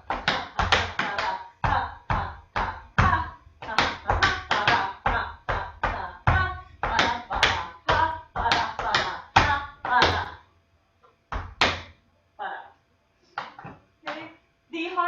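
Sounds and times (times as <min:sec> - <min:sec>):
tap shoes on hard floor: 0:11.3 - 0:11.9.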